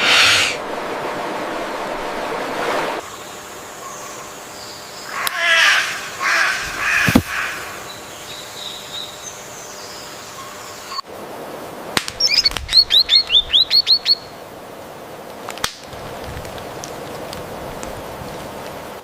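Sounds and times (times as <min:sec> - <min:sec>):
outdoor background hiss: 0:00.0 - 0:19.0
songbird chirping: 0:03.0 - 0:11.1, 0:12.2 - 0:14.5.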